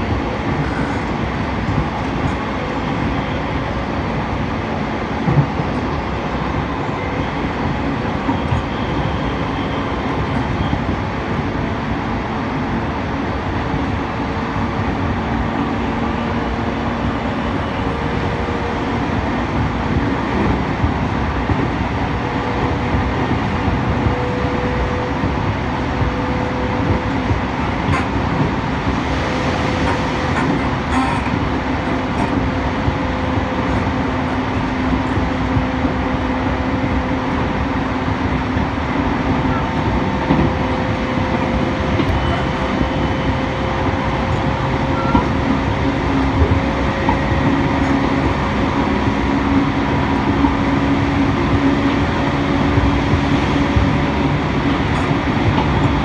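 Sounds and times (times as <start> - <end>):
train rolling rumble: 0.0 - 56.0.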